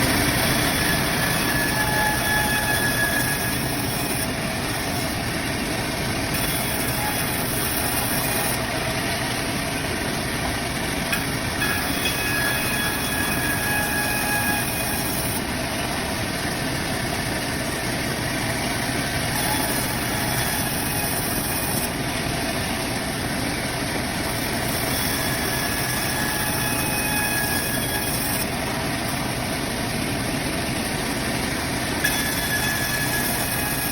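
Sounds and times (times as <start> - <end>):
band saw cutting log: 0.0 - 9.7, 10.6 - 29.8, 32.0 - 33.9.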